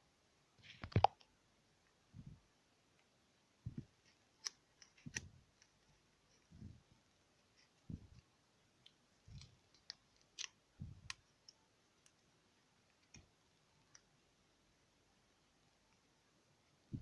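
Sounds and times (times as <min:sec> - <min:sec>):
soft low thumps: 0:02.1 - 0:02.4, 0:03.6 - 0:03.9, 0:06.5 - 0:06.9, 0:07.9 - 0:08.2, 0:10.8 - 0:11.1.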